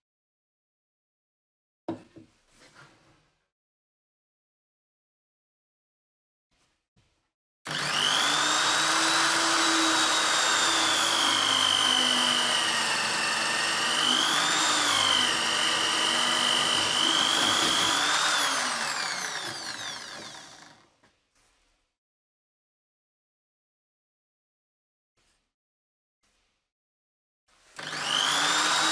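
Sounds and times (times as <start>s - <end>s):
electric drill whining: 7.7s - 20.8s, 27.8s - 28.9s.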